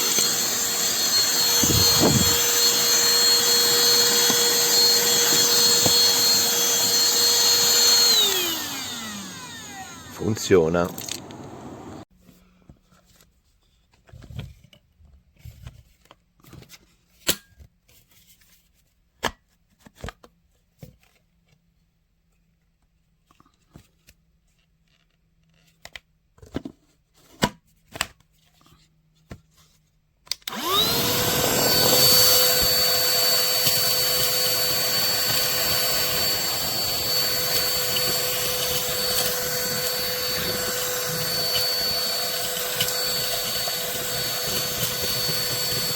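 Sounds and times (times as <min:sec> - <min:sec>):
handheld vacuum cleaner motor whine: 0:00.0 - 0:12.1, 0:30.4 - 0:45.9.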